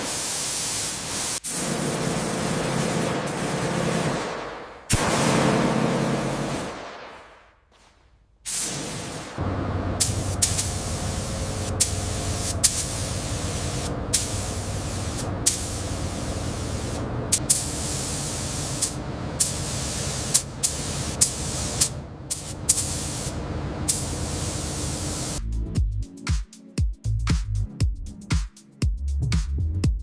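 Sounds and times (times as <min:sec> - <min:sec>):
spray nozzle hissing in bursts: 0:00.0 - 0:04.1, 0:08.5 - 0:25.4
low mechanical hum: 0:09.4 - 0:25.4.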